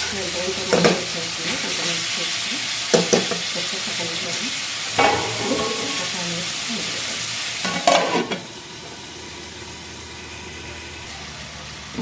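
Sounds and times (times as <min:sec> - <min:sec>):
chicken sizzling in a pan: 0:00.0 - 0:12.0
spatula scraping a pan: 0:05.0 - 0:06.2, 0:07.6 - 0:08.5.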